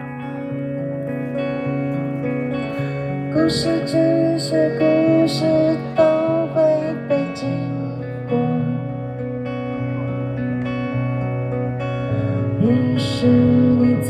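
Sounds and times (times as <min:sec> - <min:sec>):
live band with guitar: 0:00.0 - 0:14.0
person singing: 0:02.6 - 0:11.4, 0:12.0 - 0:14.0.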